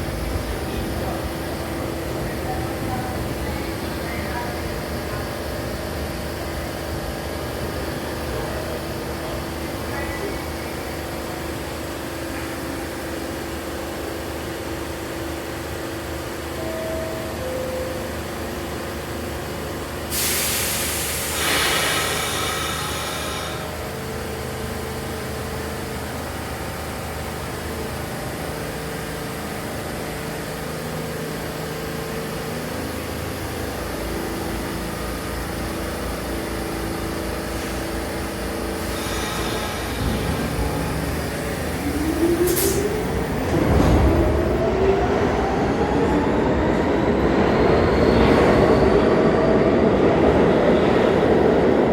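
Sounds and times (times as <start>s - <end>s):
subway train running hum: 0.0s - 51.9s
compressed air hiss: 20.1s - 23.7s, 38.8s - 40.0s.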